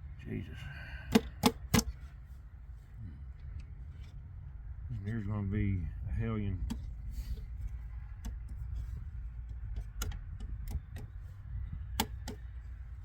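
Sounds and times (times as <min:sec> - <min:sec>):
steady low rumble: 0:00.0 - 0:13.0
hand tools clicking and tapping: 0:12.0 - 0:12.5.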